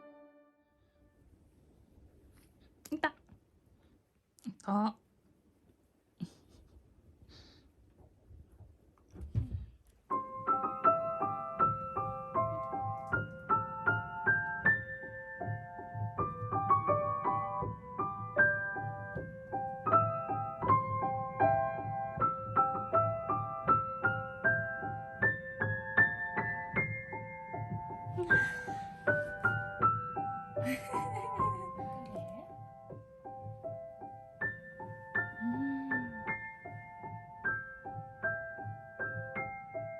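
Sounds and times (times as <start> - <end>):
solo piano music: 0.0 - 1.3, 10.1 - 39.9.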